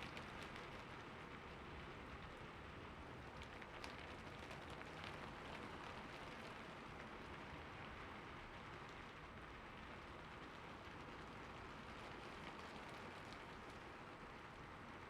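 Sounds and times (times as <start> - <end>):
soft rain falling: 0.0 - 15.0.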